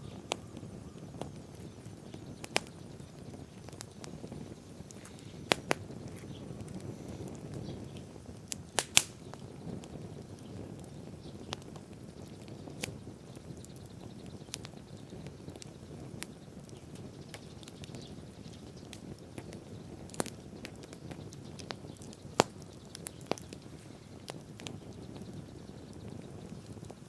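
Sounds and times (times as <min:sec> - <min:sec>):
bonfire flame rushing: 0:00.0 - 0:27.0
fire crackling and popping: 0:00.0 - 0:27.0.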